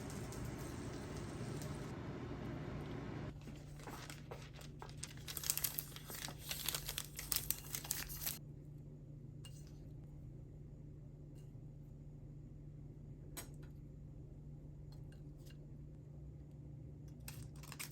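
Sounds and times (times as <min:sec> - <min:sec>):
crinkling and crackling: 0:00.0 - 0:02.0, 0:02.7 - 0:08.4, 0:17.2 - 0:17.9
steady low hum: 0:00.0 - 0:04.2.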